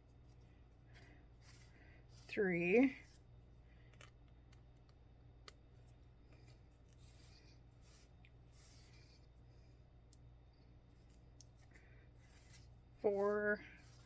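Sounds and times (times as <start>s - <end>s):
needle and thread through fabric: 0.0s - 3.3s, 6.3s - 9.4s, 10.9s - 14.0s
low steady hum: 0.0s - 14.0s.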